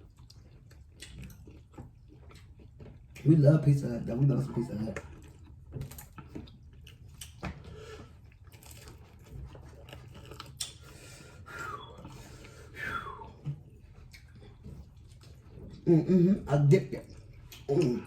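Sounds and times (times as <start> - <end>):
chewing and biting chicken wings: 0.0 - 18.0.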